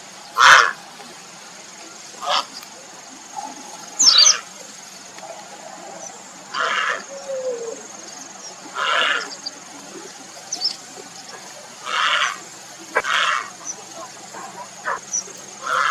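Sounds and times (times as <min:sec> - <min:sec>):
heron croaking calls: 0:00.3 - 0:01.0, 0:02.2 - 0:02.7, 0:03.3 - 0:04.5, 0:05.2 - 0:08.0, 0:08.6 - 0:15.9.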